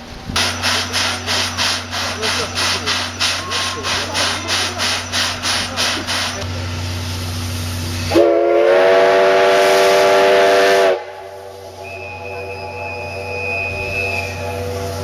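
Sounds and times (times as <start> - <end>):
steam locomotive exhaust chuffs: 0.0 - 15.0
steam hissing: 0.1 - 15.0
steam whistle blast: 8.0 - 15.0.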